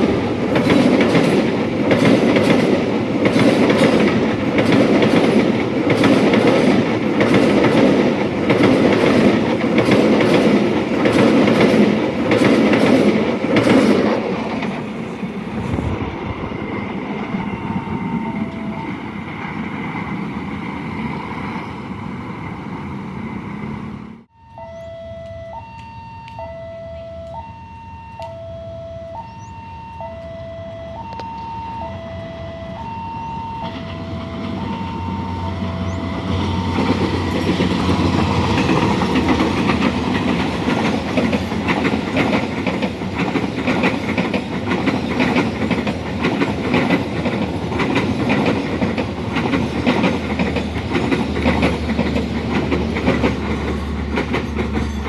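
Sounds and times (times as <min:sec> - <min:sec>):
train wheels clicking over rail joints: 0:00.0 - 0:23.8, 0:32.7 - 0:55.0
train approaching: 0:00.0 - 0:55.0
two-tone crossing warning signal: 0:15.7 - 0:19.6, 0:24.2 - 0:41.0.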